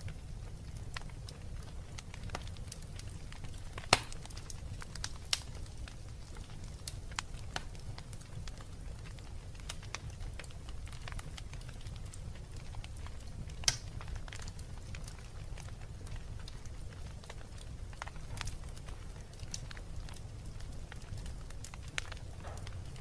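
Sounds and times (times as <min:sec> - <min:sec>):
low rumble of flames: 0:00.0 - 0:23.0
wood fire crackling and popping: 0:00.0 - 0:23.0.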